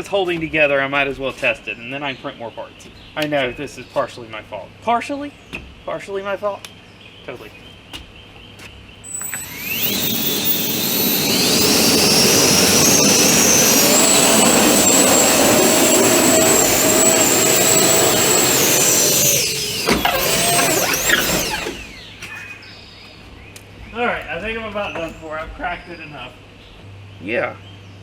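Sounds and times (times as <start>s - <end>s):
drone fans whining: 9.0s - 23.7s.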